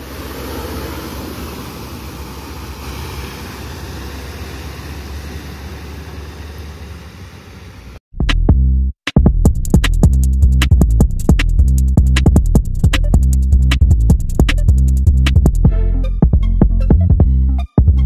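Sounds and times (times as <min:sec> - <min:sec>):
diesel truck engine drone: 0:00.0 - 0:08.0
tyre and road noise: 0:00.0 - 0:08.0.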